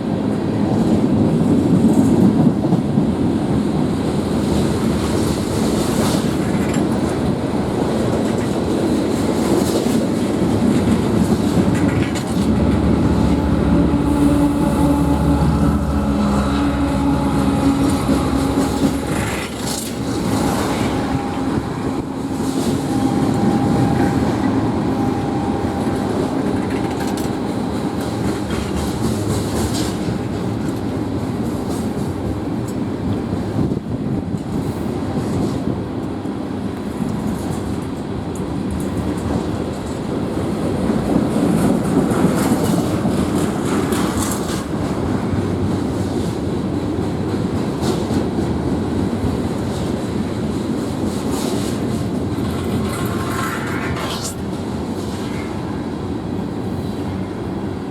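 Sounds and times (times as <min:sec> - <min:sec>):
steel wheels rumbling on rail: 0:00.0 - 0:57.9
humming tone: 0:10.7 - 0:31.3.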